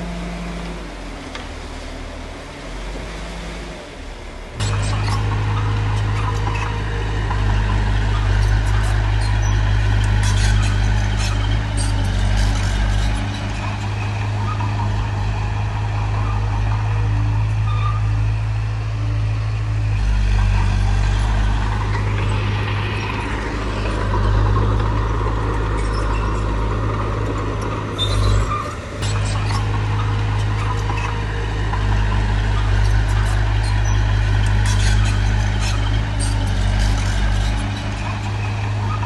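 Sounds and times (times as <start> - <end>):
heavy machinery diesel engine: 0.0 - 39.0.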